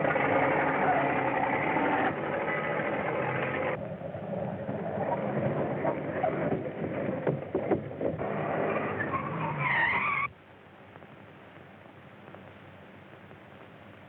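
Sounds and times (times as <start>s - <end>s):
high brake squeal: 0.0s - 2.8s, 8.6s - 10.3s
vehicle running with clattering: 0.0s - 9.6s
film soundtrack hiss: 0.0s - 14.0s.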